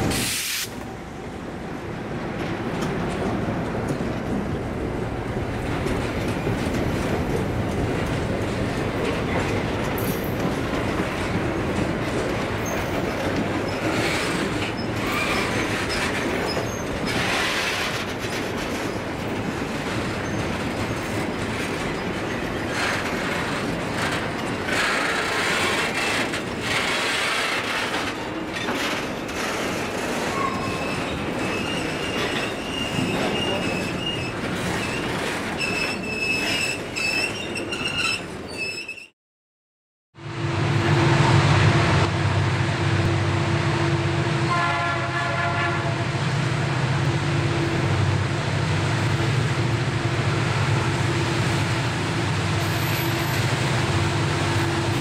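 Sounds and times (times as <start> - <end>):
train wheels rumbling on rails: 0.0 - 38.7, 40.3 - 55.0
high wheel squeal: 30.2 - 39.1.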